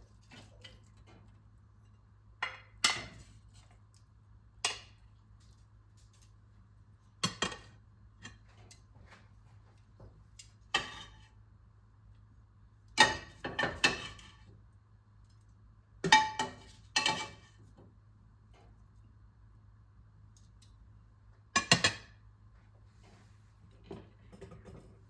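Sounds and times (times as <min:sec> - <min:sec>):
dishes and utensils clinking: 0:16.1 - 0:17.4.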